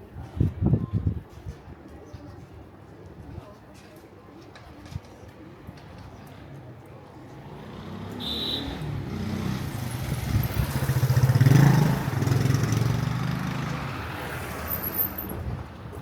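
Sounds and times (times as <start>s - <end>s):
motorcycle passing: 7.3s - 15.3s.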